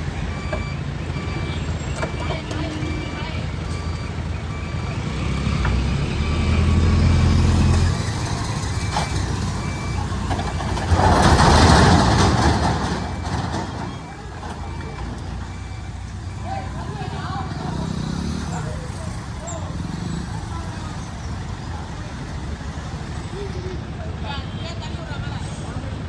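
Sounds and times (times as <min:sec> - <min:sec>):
reversing alarm beeping: 0:00.0 - 0:20.2
diesel truck engine running: 0:00.0 - 0:26.0.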